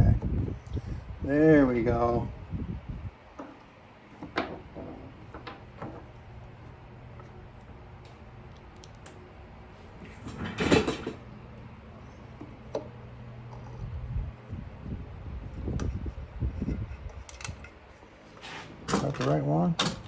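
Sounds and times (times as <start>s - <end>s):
steady low hum: 0.0s - 20.0s
tools clattering: 10.0s - 11.2s
tools clicking and knocking: 17.1s - 17.8s, 18.9s - 20.0s.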